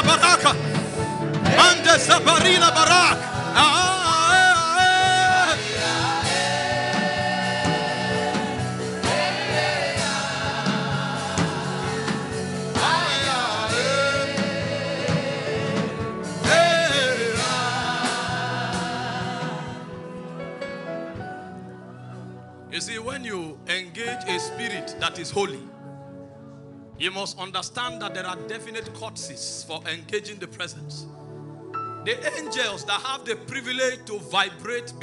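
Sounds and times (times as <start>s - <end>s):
gospel worship singing: 0.0s - 21.2s
instrumental accompaniment: 0.0s - 29.4s.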